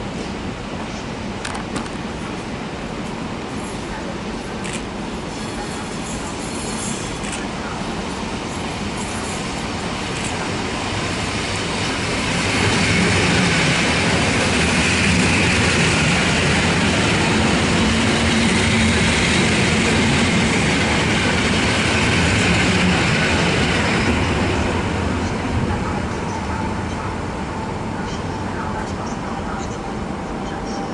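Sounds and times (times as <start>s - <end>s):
electric train moving: 3.4s - 30.9s.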